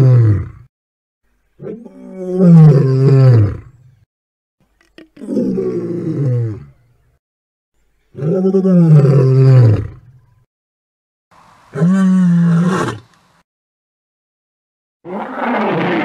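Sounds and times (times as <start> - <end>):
monster roars: 15.1 - 16.0.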